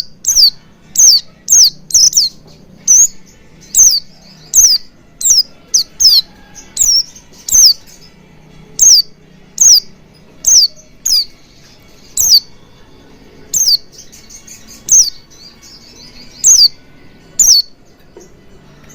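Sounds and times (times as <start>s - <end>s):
bird calling high sharp notes: 0.0s - 8.0s, 8.8s - 11.4s, 12.1s - 12.5s, 13.5s - 16.8s, 17.4s - 17.7s.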